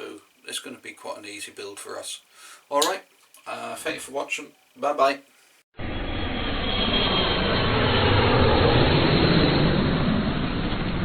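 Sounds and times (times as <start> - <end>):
aircraft engine rushing: 5.8 - 11.0.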